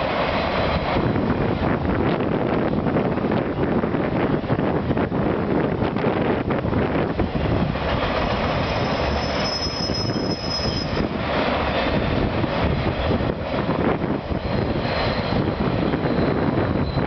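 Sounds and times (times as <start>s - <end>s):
high wheel squeal: 8.4s - 11.1s, 14.4s - 17.0s.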